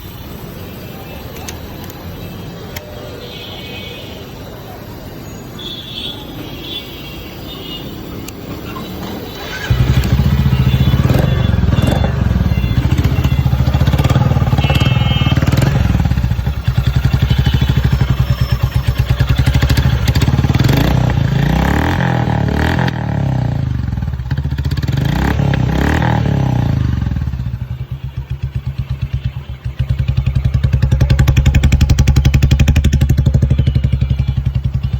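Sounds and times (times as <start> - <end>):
motorcycle engine starting and revving: 8.5 - 34.9.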